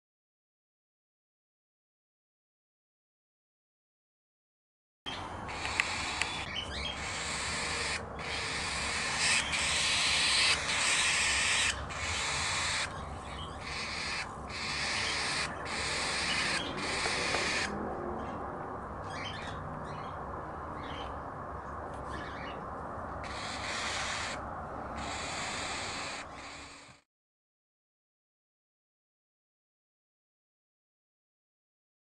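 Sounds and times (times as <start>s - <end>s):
chicks raspy begging calls: 5.5s - 17.8s, 23.2s - 24.4s, 25.0s - 27.0s.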